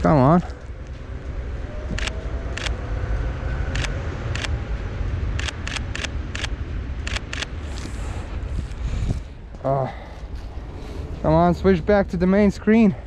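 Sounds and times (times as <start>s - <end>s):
low rumble: 0.0s - 13.0s
camera shutter clicks: 5.4s - 7.5s.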